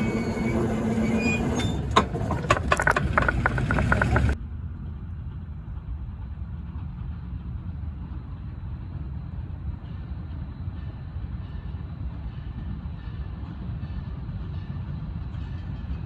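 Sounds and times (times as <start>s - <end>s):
train rumbling by: 0.0s - 4.4s.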